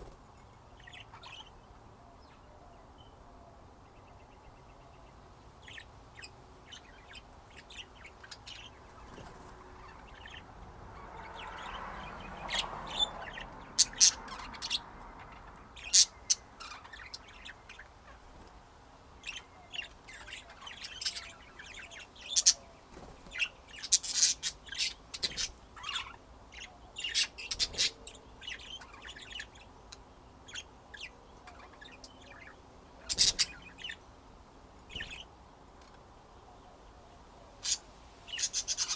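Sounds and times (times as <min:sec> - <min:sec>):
budgerigars chirping: 0:00.8 - 0:02.5, 0:05.6 - 0:34.1, 0:34.9 - 0:35.3, 0:37.6 - 0:38.9.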